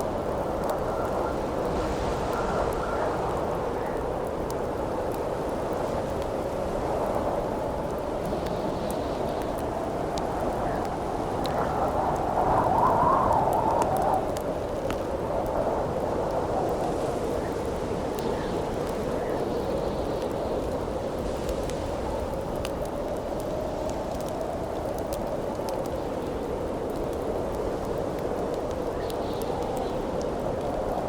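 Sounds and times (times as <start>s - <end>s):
howling wind: 0.0s - 31.0s.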